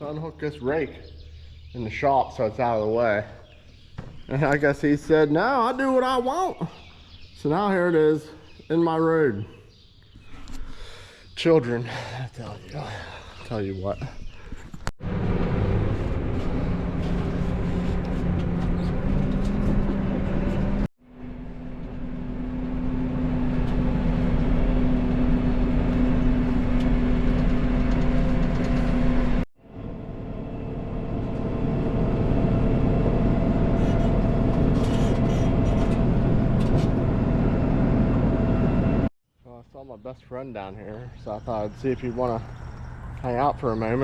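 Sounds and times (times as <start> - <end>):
tractor engine running: 15.0 - 39.1.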